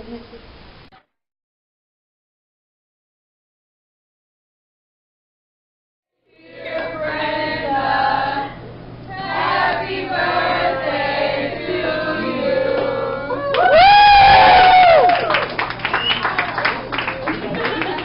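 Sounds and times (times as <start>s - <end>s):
choir singing: 6.3s - 13.5s
wavering voice: 6.4s - 13.6s
steady low hum: 6.4s - 16.0s.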